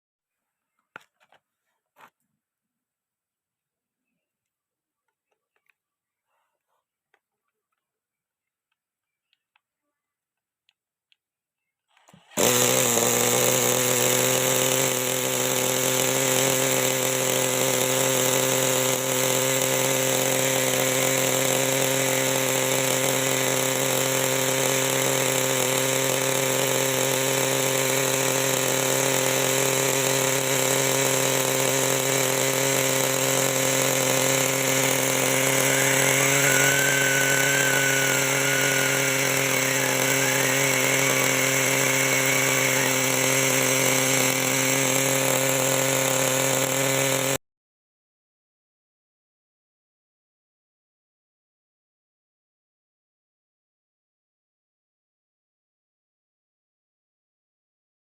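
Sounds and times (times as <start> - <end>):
small glow engine running: 12.0 - 47.4.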